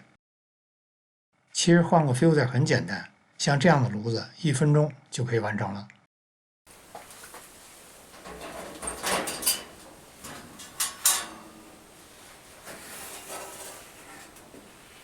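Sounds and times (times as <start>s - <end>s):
filter scraping and rustling: 6.8s - 15.0s.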